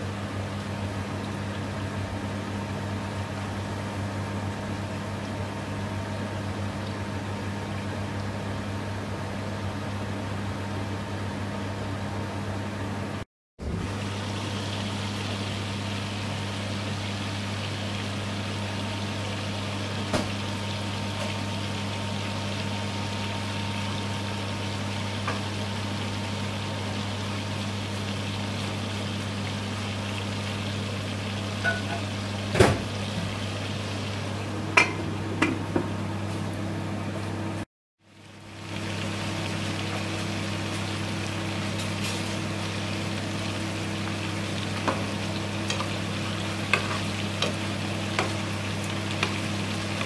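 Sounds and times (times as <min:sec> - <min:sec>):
food sizzling in hot oil: 0:13.8 - 0:35.0, 0:38.1 - 0:50.0.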